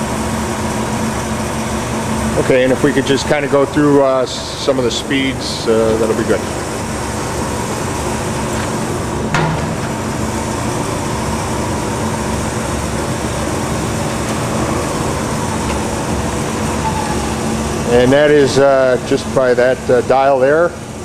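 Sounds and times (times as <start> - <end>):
band saw running: 0.0 - 21.0.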